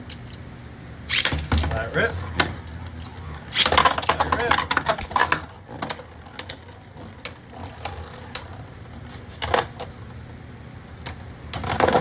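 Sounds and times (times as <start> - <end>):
plastic tops clacking together: 1.1 - 8.6
spinning tops whirring: 1.1 - 10.0.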